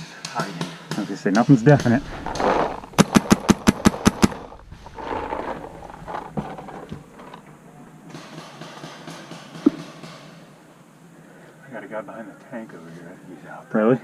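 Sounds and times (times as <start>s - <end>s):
distant paintball shots: 0.4s - 4.7s, 8.1s - 10.5s
paintball marker firing: 1.8s - 4.6s.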